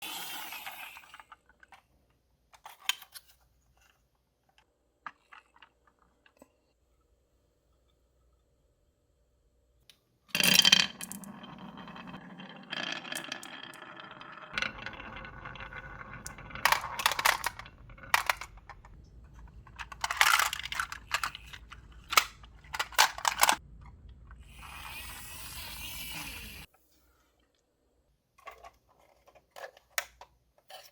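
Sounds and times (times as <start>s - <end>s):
marbles clicking and clacking: 10.3s - 23.6s
marbles rolling rumble: 10.3s - 26.7s.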